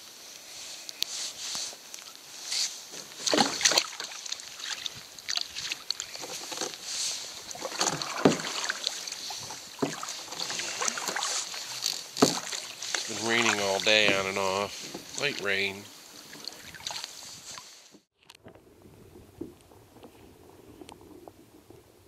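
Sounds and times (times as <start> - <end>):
light rain falling: 0.0 - 17.9
raindrops tapping and splashing: 7.4 - 17.2.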